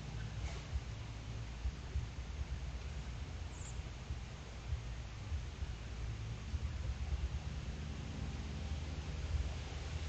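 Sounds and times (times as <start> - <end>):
steady background hiss: 0.0 - 10.0
uneven low rumble: 0.0 - 10.0.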